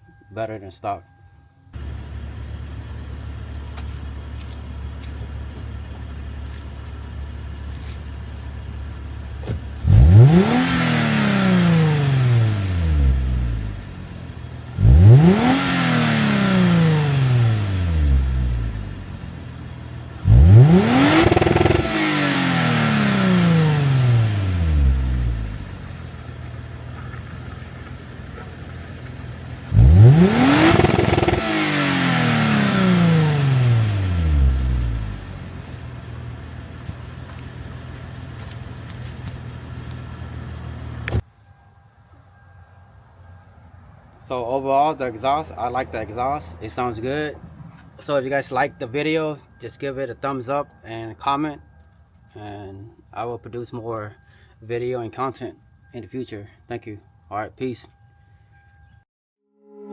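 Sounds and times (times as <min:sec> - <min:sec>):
car engine idling and revving: 0:01.7 - 0:41.3.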